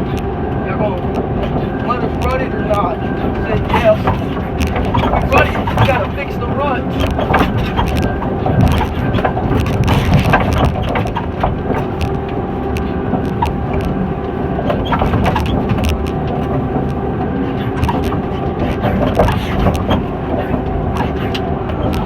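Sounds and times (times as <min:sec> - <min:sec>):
diesel engine under load: 0:00.0 - 0:22.0
wood cracking and snapping: 0:01.0 - 0:22.0.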